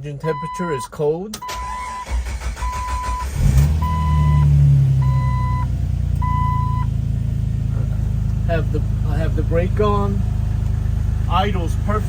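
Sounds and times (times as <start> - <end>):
car engine starting and idling: 0.0 - 12.0
vehicle warning chime beeps: 0.2 - 7.0.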